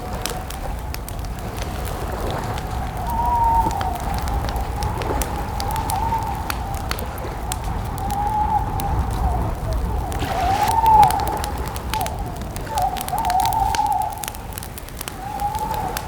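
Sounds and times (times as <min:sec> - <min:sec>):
campfire crackling and popping: 0:00.0 - 0:16.0
low rumble: 0:06.7 - 0:12.7
wavering whistle-like tone: 0:08.1 - 0:11.6.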